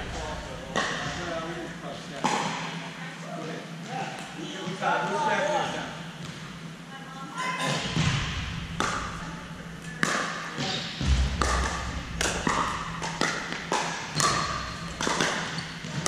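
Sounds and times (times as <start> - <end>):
paddles hitting plastic ball: 11.4 - 16.0.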